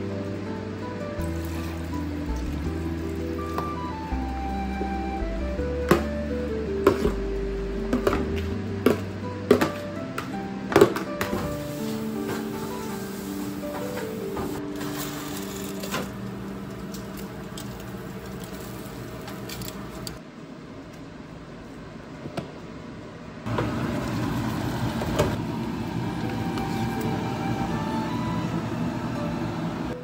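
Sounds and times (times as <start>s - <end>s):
background music: 0.0s - 18.2s, 25.6s - 30.0s
food sizzling in a wok: 1.2s - 3.8s, 11.6s - 15.8s.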